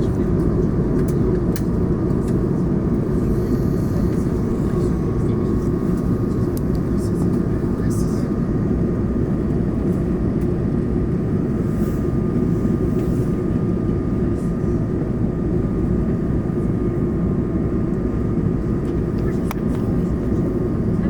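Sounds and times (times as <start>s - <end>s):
aircraft cabin engine drone: 0.0s - 21.0s
thin steady whine: 2.2s - 9.5s
rushing airflow: 2.9s - 7.8s.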